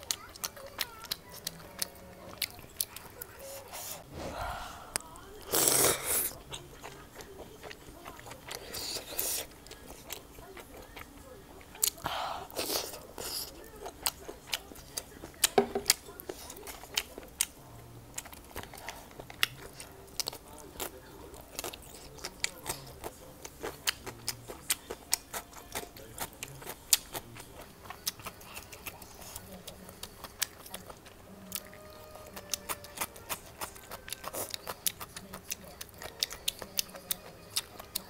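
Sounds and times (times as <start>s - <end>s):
crisp chewing and biting: 0.0s - 4.4s, 5.0s - 38.0s.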